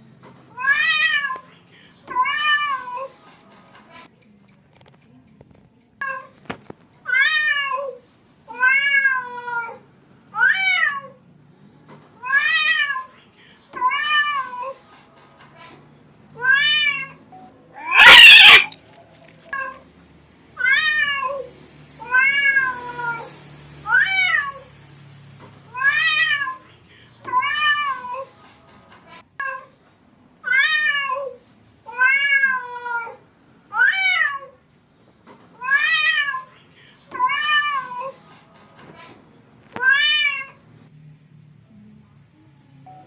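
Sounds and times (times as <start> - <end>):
cat harsh rasping cry: 17.8 - 18.8
cat meowing: 17.8 - 18.8, 20.6 - 23.3, 30.5 - 33.2, 33.8 - 34.6, 35.6 - 36.5, 39.8 - 40.6.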